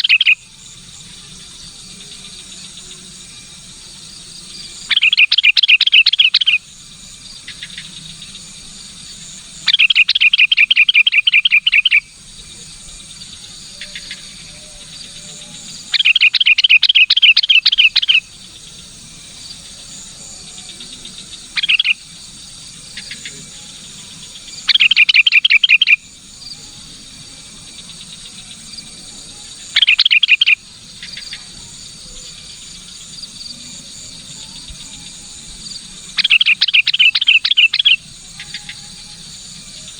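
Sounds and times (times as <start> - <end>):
bird chattering: 0.0 - 0.4, 4.9 - 6.6, 9.6 - 12.1, 15.9 - 18.3, 21.5 - 22.0, 24.6 - 26.0, 29.8 - 31.3, 36.2 - 38.7
insects buzzing: 0.0 - 39.9.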